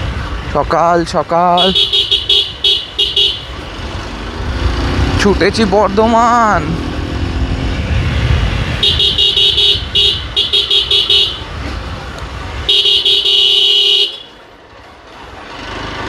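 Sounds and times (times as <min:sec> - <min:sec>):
road riding rumble: 0:00.0 - 0:16.0
vehicle horn honking: 0:01.6 - 0:03.6, 0:08.8 - 0:11.6, 0:12.7 - 0:14.4.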